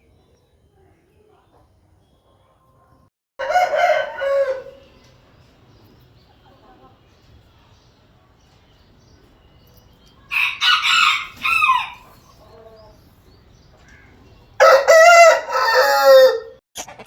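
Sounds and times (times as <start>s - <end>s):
rooster crowing: 3.4s - 5.0s, 10.3s - 12.2s, 14.6s - 16.6s.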